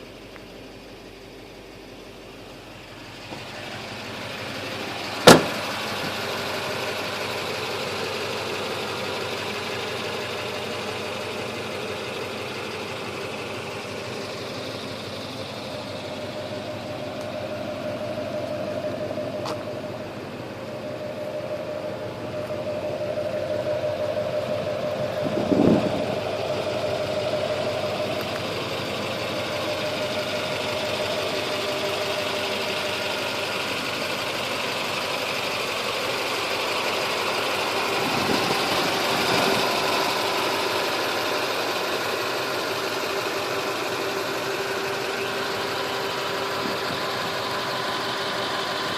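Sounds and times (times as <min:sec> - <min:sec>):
diesel engine idling: 0:00.0 - 0:48.9
low thump: 0:05.2 - 0:05.6.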